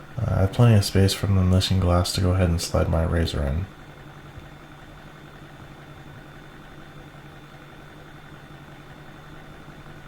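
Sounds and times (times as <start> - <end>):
faint high whine: 0.0 - 10.0
mechanical hum: 0.0 - 10.0.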